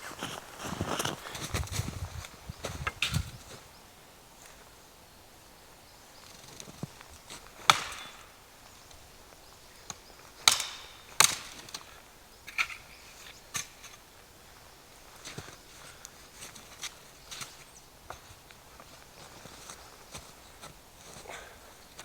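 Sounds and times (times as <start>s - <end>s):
wood being chopped: 7.6s - 8.4s, 10.4s - 11.9s.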